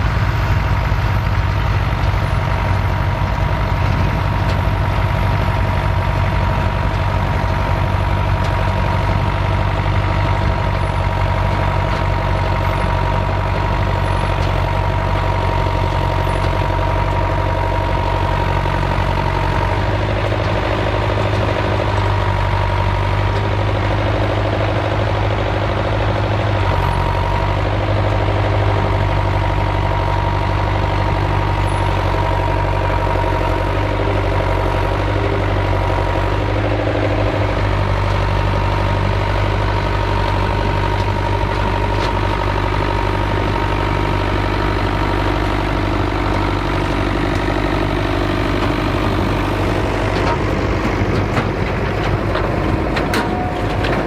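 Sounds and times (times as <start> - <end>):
tractor engine running: 0.0 - 54.0
clattering and knocking: 49.8 - 54.0.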